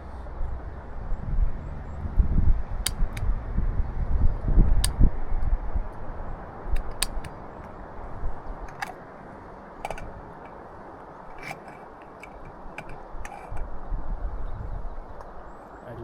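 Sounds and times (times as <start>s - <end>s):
steady low hiss: 0.0s - 16.0s
cooking gear clicks and knocks: 8.7s - 9.0s, 9.8s - 10.6s, 11.3s - 13.6s.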